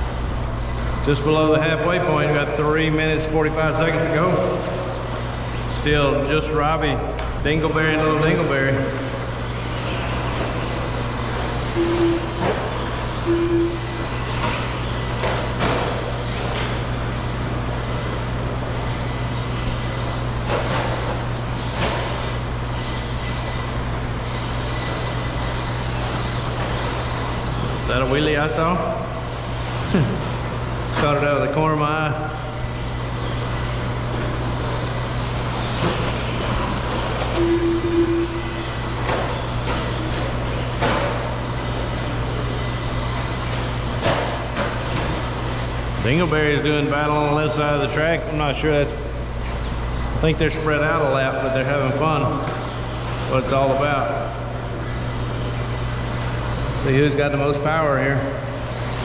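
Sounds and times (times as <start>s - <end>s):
electric model truck motors whining: 0.0s - 59.0s
steady low hum: 0.0s - 59.0s
rc truck landings: 29.2s - 31.3s, 32.7s - 46.2s.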